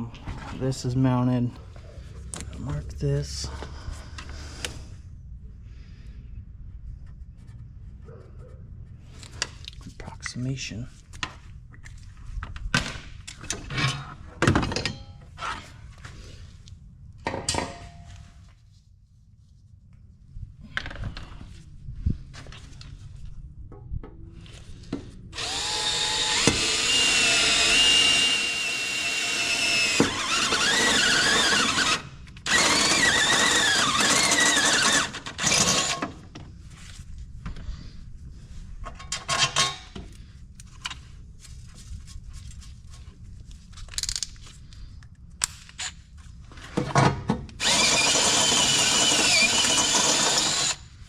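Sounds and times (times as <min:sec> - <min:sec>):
power drill whining: 0:25.4 - 0:36.1, 0:47.6 - 0:50.8.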